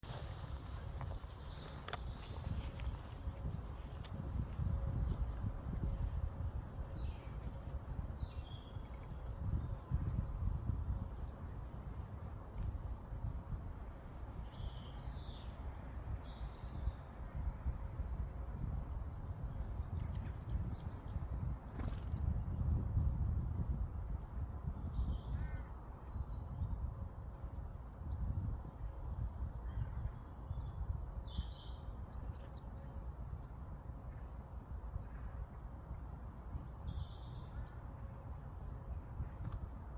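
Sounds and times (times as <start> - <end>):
steady low rumble: 0.0 - 16.4.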